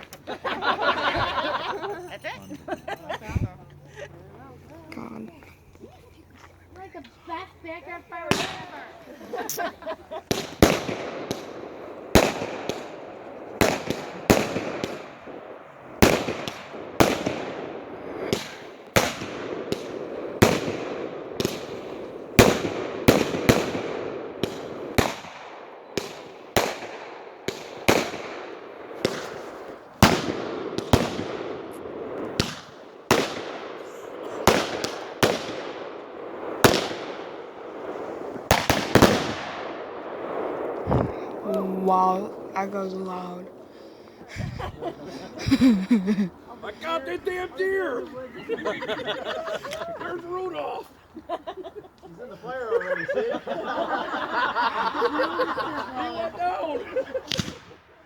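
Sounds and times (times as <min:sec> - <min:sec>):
fireworks hissing: 0:07.3 - 0:48.1
fireworks bangs: 0:07.3 - 0:52.0, 0:53.4 - 0:58.0.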